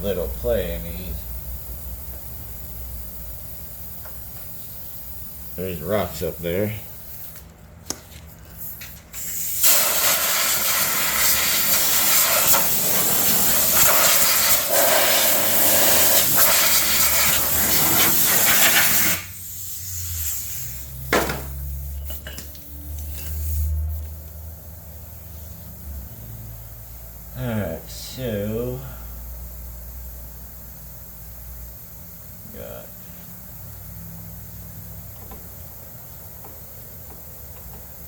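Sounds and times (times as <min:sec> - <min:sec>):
compressed air hissing: 0:00.0 - 0:07.5, 0:08.5 - 0:25.8.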